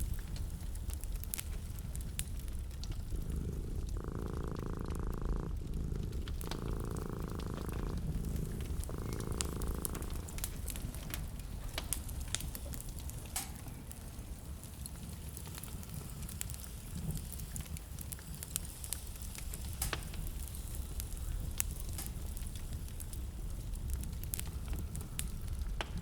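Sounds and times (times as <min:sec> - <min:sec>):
low purr-like buzz: 0:00.0 - 0:14.4
wood fire crackling: 0:00.0 - 0:26.0.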